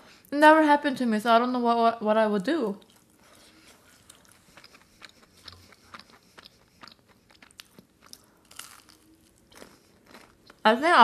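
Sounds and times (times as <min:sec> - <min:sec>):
crisp crunching of food: 0:02.9 - 0:10.6.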